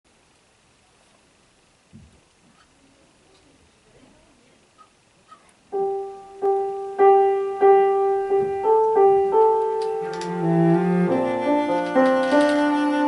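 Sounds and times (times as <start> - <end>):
slow piano notes: 5.7 - 13.0.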